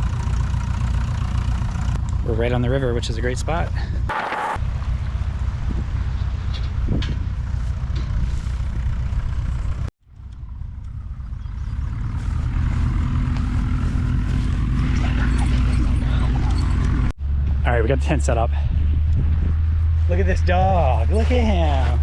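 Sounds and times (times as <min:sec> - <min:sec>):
propeller aircraft engine: 0:00.0 - 0:02.2, 0:07.4 - 0:17.6.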